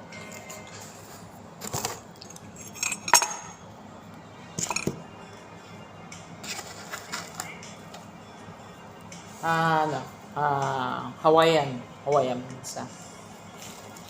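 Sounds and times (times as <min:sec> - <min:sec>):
tableware clinking and rattling: 0:02.6 - 0:03.6, 0:04.6 - 0:05.0.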